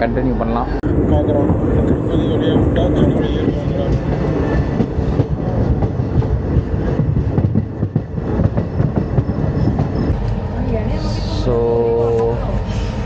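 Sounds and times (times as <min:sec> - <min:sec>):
train rumbling on track: 0:00.0 - 0:13.0
train wheels clacking: 0:01.4 - 0:10.4.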